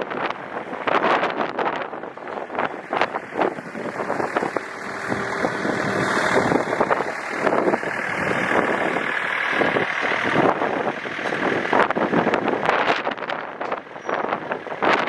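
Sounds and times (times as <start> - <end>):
tractor diesel engine running: 0.0 - 15.0
steady high whine: 2.7 - 11.3.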